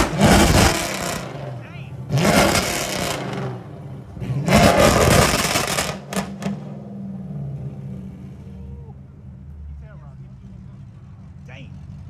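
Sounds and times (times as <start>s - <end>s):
exhaust cracks: 0.0s - 6.7s
car engine idling and revving: 0.0s - 12.0s.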